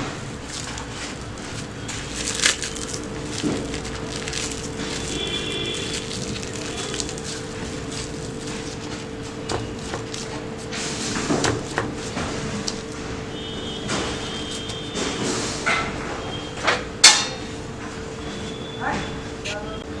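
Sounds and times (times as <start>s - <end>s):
cling wrap crinkling: 0.0s - 15.6s
steady hum: 0.0s - 20.0s.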